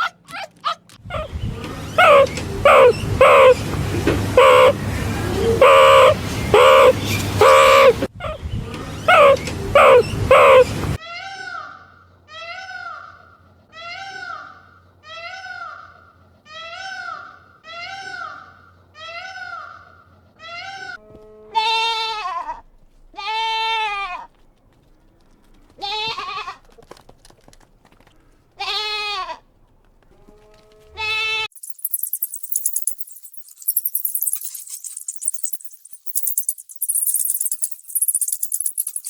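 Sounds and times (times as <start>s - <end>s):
animal bleating: 5.5s - 8.0s, 9.2s - 11.7s, 16.6s - 24.4s, 25.6s - 26.8s, 28.6s - 29.5s, 30.1s - 31.5s.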